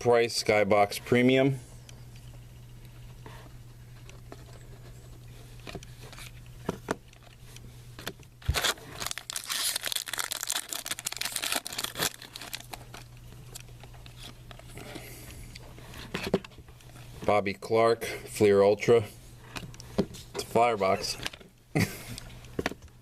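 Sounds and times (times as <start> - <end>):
foil wrapper tearing and crinkling: 8.4 - 13.1.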